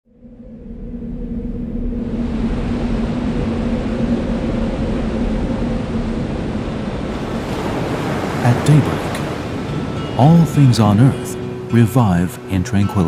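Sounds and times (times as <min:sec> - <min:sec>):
rumbling drone with low hum: 0:00.0 - 0:08.0.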